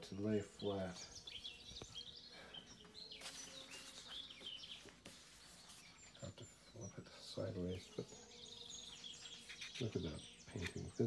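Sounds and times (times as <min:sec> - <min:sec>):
faint bird chirps: 0:00.0 - 0:11.0
heavy book pages turning: 0:03.1 - 0:06.2.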